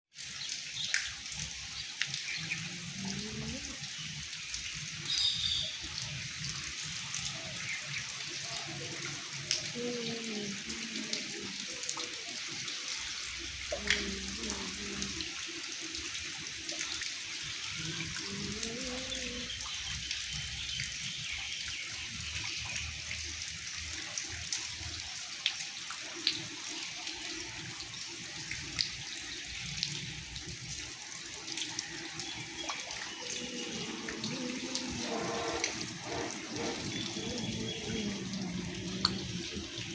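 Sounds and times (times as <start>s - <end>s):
drips and splashes: 0.1s - 39.9s
heavy rain hissing: 13.4s - 15.3s, 17.5s - 19.6s, 33.2s - 39.9s.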